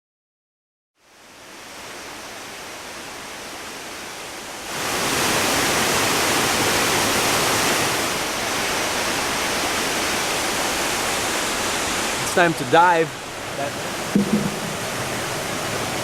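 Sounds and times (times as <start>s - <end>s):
waterfall pouring: 4.7s - 16.0s.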